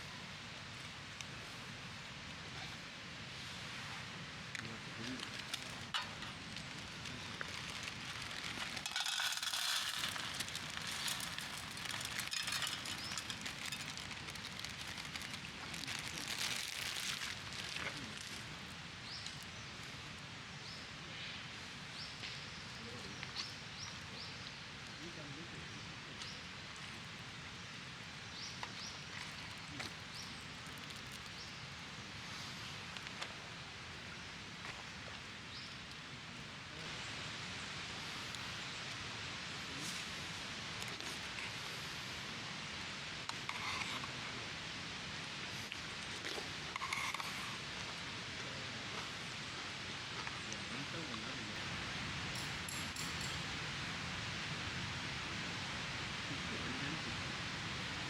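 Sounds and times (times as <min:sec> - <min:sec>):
steady hiss: 0:00.0 - 0:58.0
wood fire crackling: 0:04.4 - 0:19.6, 0:29.5 - 0:31.4.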